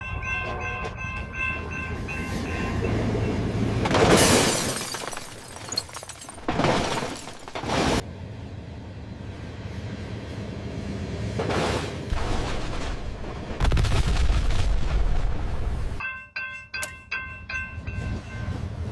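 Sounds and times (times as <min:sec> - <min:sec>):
crossing bell ringing: 0:00.0 - 0:03.8, 0:16.0 - 0:18.9
passing train rushing: 0:00.0 - 0:04.1, 0:08.0 - 0:12.2, 0:17.0 - 0:18.9
low train rumble: 0:00.0 - 0:04.2, 0:08.0 - 0:13.7, 0:14.7 - 0:18.9.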